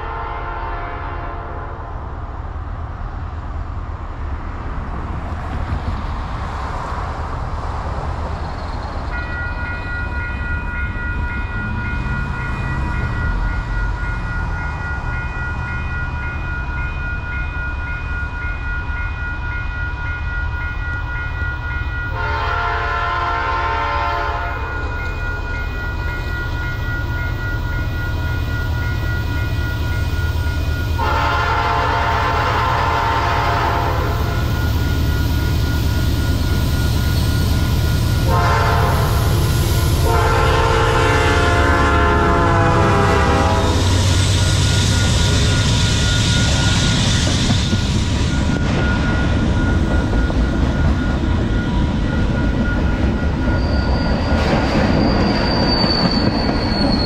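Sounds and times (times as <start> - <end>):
locomotive air horn blasts: 0.0 - 1.8, 22.1 - 24.7, 31.0 - 34.4, 38.2 - 39.4, 40.0 - 44.0
locomotive rumbling past: 0.0 - 57.0
freight cars rolling on rail: 2.1 - 57.0
train wheel squeal: 8.2 - 18.6, 20.6 - 40.2, 42.2 - 57.0.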